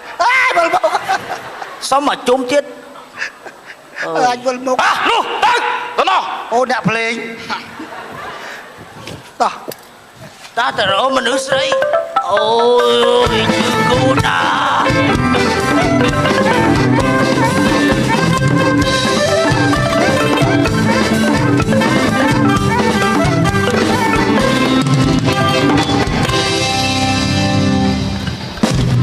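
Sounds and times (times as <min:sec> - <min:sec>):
lively instrumental band music: 0:11.2 - 0:29.0
drum and percussion beat: 0:11.5 - 0:27.2.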